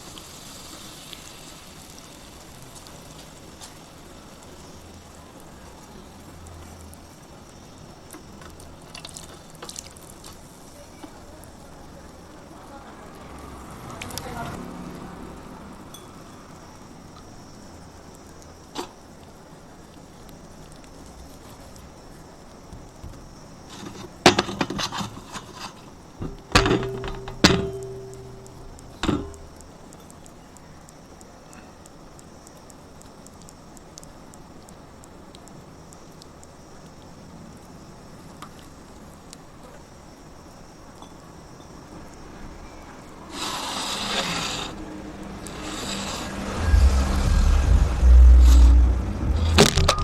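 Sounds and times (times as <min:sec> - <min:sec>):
small crackles and pops: 0:00.0 - 0:14.5, 0:16.5 - 0:43.5
clay fizzing as it soaks water: 0:00.0 - 0:50.0
clay crumbling crackles: 0:08.0 - 0:12.2
ringing hum: 0:26.2 - 0:29.6, 0:46.6 - 0:50.0.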